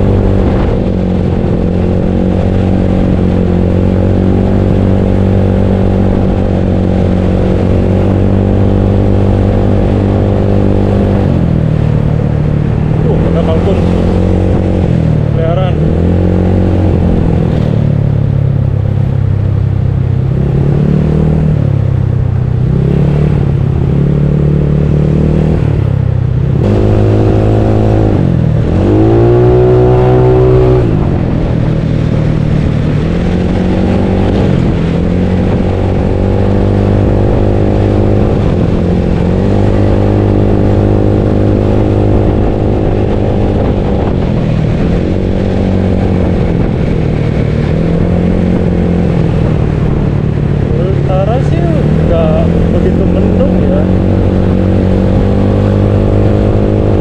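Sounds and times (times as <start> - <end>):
scooter engine revving: 32.3 - 57.0.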